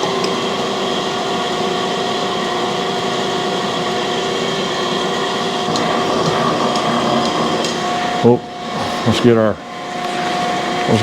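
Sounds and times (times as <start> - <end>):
grinding machine humming: 4.7 - 11.0.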